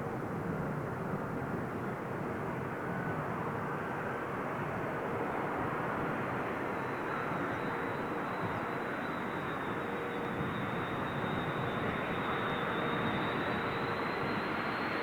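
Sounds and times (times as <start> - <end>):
high jet engine whine: 0.0 - 15.0
jet engines rushing: 5.7 - 15.0.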